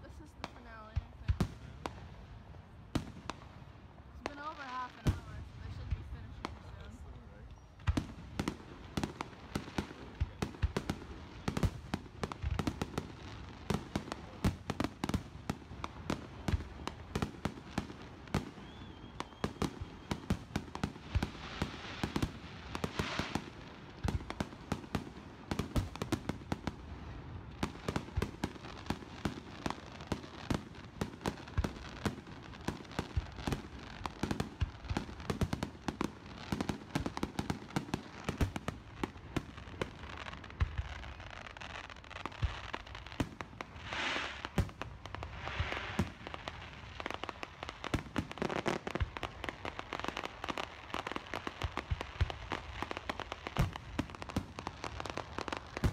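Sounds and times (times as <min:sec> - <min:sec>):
crackling hiss: 0:00.0 - 0:55.9
fireworks bangs: 0:04.2 - 0:55.9.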